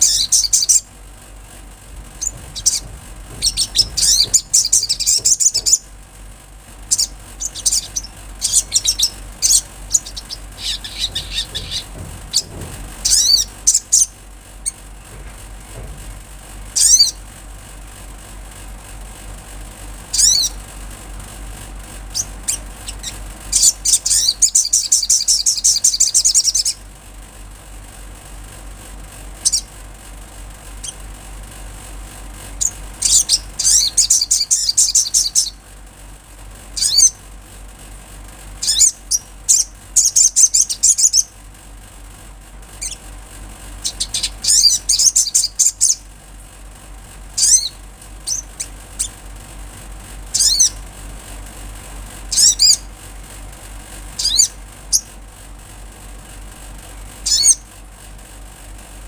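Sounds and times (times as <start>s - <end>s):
bird twittering trills: 0.0s - 0.9s, 2.1s - 5.9s, 6.9s - 14.8s, 16.8s - 17.2s, 20.1s - 20.6s, 22.1s - 26.8s, 29.4s - 29.7s, 32.6s - 35.6s, 36.8s - 37.2s, 38.6s - 41.3s, 42.8s - 43.1s, 43.8s - 46.1s, 47.4s - 49.2s, 50.3s - 50.8s, 52.3s - 52.9s, 54.2s - 55.1s, 57.2s - 57.6s
faint low hum: 0.0s - 58.0s.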